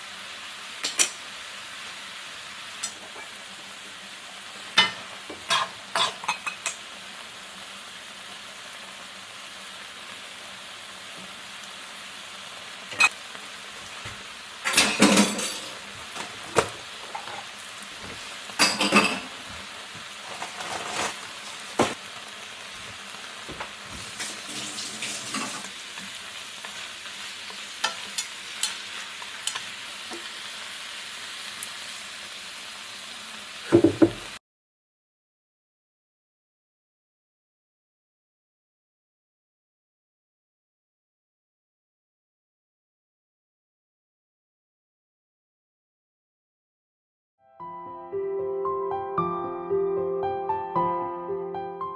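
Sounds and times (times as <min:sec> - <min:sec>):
sizzling hiss: 0:00.0 - 0:34.4
utensils clinking on dishes: 0:04.8 - 0:06.8, 0:12.9 - 0:13.1, 0:14.6 - 0:16.3, 0:18.6 - 0:19.4.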